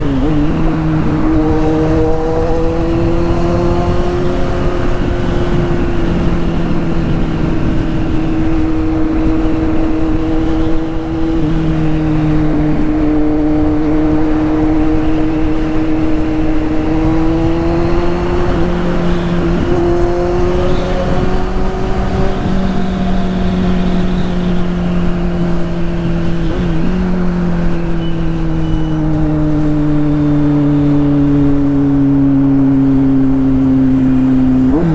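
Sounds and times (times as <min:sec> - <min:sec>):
motorcycle engine at high revs: 0:00.0 - 0:34.9.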